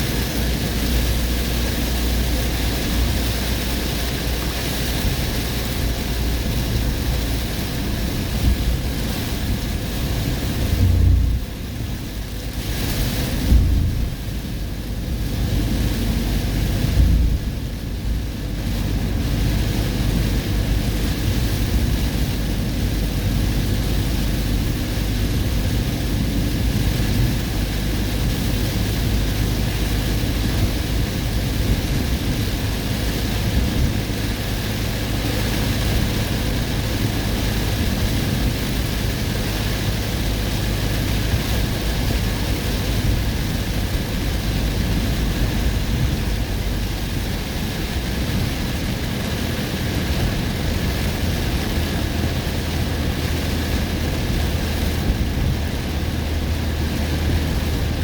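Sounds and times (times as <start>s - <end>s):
car road and engine rumble: 0.0s - 58.0s
heavy rain: 0.0s - 58.0s
thump: 13.4s - 14.2s.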